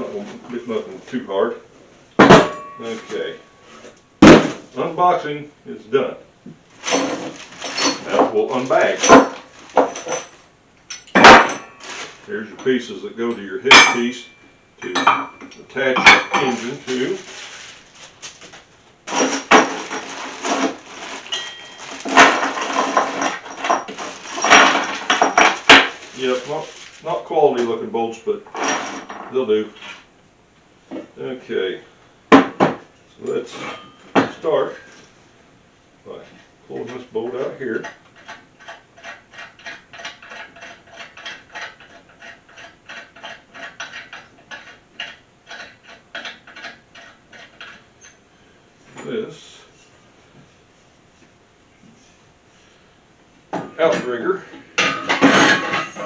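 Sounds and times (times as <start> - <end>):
sharp metal knocks: 2.2 - 3.0.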